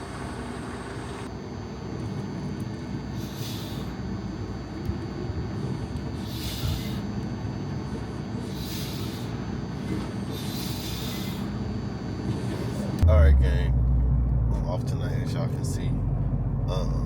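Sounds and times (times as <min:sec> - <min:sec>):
short hissing swish: 0:06.2 - 0:07.0, 0:08.5 - 0:09.4, 0:10.3 - 0:11.6
vehicle rumble from inside: 0:12.3 - 0:17.0.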